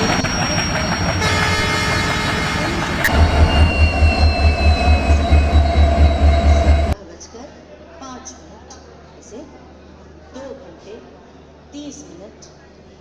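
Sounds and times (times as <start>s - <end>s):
high whining tones: 0.0s - 7.0s
low rhythmic pulsing: 0.0s - 7.0s
train wheels rumbling on rails: 0.0s - 7.0s.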